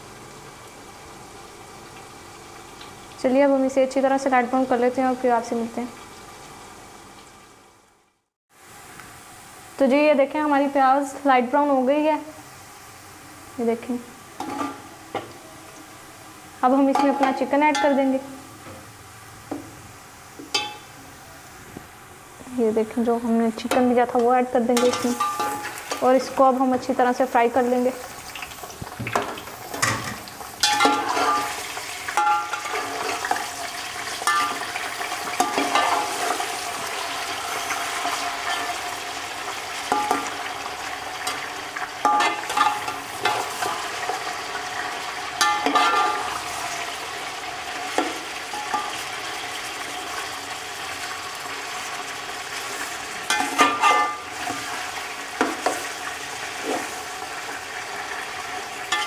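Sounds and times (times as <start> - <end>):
chicken sizzling in oil: 0.0 - 59.0
metal spatula scraping pot: 29.7 - 33.5, 45.4 - 46.7, 52.6 - 57.0.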